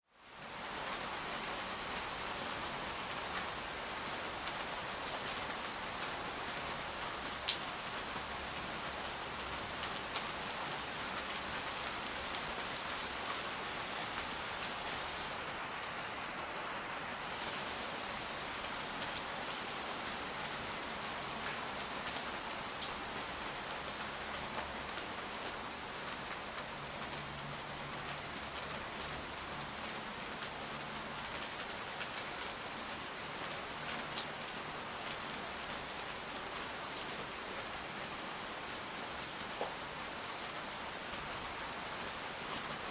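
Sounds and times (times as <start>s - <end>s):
rain hiss: 0.2s - 42.9s.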